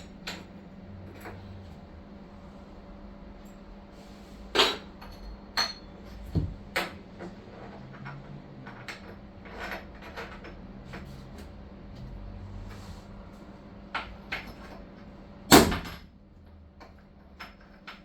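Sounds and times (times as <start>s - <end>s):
metallic clanks and clinks: 4.6s - 7.0s.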